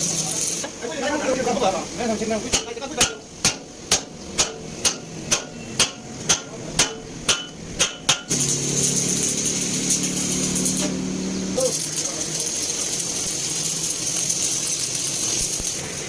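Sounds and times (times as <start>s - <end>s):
hammer blows on metal: 2.5s - 8.4s
power tool running: 8.3s - 16.0s.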